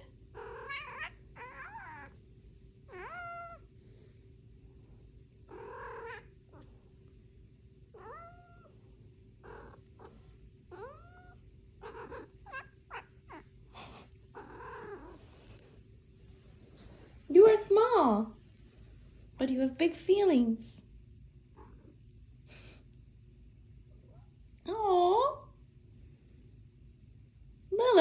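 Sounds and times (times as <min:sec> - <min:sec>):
cat chirping calls: 0:00.4 - 0:02.2, 0:02.9 - 0:03.7, 0:05.5 - 0:06.7, 0:08.0 - 0:08.7, 0:10.7 - 0:13.5, 0:14.4 - 0:15.2
cat meowing: 0:00.4 - 0:02.2, 0:02.9 - 0:03.7, 0:05.5 - 0:06.7, 0:07.9 - 0:08.7, 0:10.7 - 0:13.5, 0:14.4 - 0:15.2.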